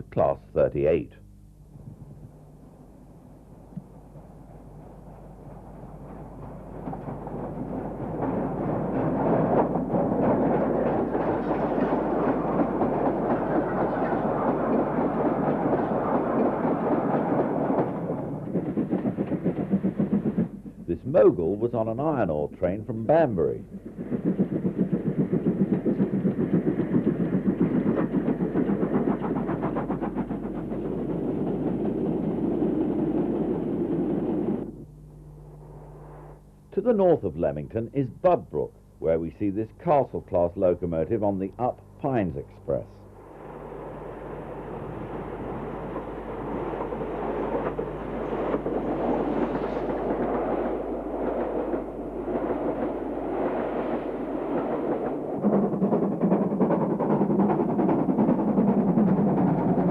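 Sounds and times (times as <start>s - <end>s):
steam train passing: 1.8s - 59.9s
faint low hum: 30.5s - 52.8s.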